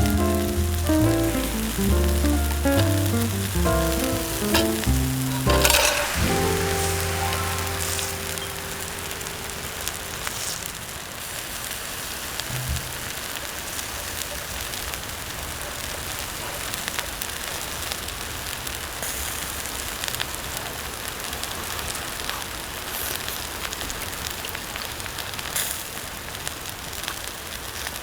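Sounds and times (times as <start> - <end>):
steady hiss: 0.0 - 14.2
campfire crackling and popping: 0.0 - 28.0.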